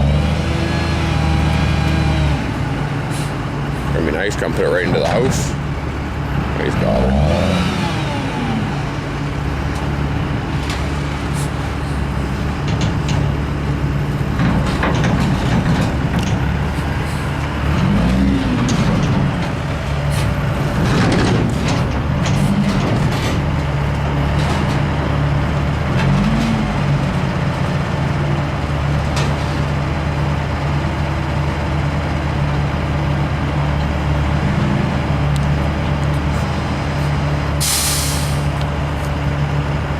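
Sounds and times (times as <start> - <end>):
diesel truck engine revving: 0.0 - 39.9
metal knocks and clanks: 12.0 - 28.3.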